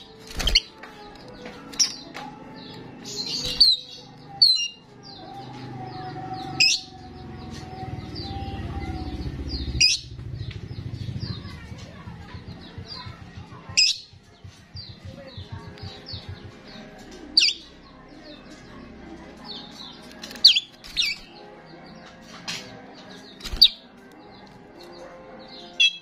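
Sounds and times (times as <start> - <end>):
starling chirping: 3.0 - 11.7, 19.5 - 22.0.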